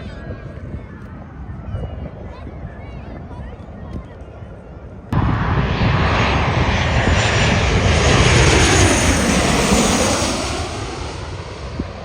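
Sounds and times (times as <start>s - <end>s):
jet airliner passing overhead: 5.1s - 12.0s.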